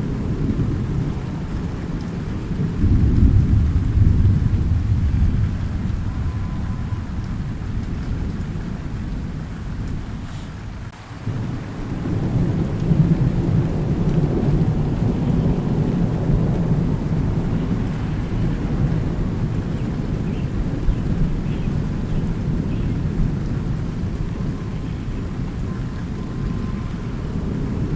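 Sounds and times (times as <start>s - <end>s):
steady rain: 0.0s - 27.9s
thunder rumbling: 0.0s - 27.9s.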